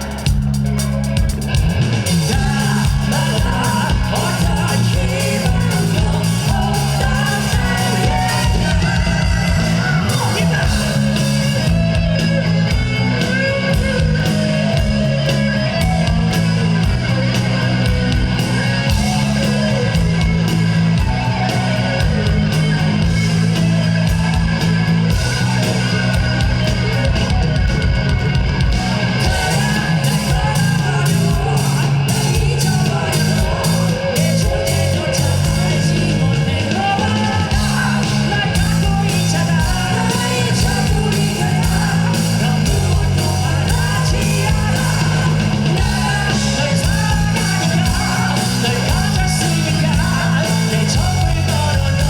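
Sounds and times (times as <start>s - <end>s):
pounding drum beat: 0.0s - 52.0s
rock band playing: 0.0s - 52.0s
person singing: 2.1s - 16.9s, 28.7s - 52.0s.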